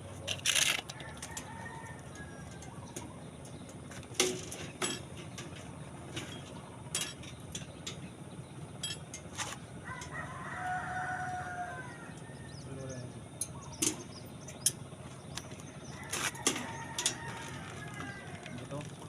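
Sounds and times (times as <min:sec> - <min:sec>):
steady low hum: 0:00.0 - 0:19.0
rooster crowing: 0:00.9 - 0:03.2, 0:09.8 - 0:12.6, 0:15.8 - 0:18.8
metallic clinks and knocks: 0:03.4 - 0:08.1, 0:08.8 - 0:10.2.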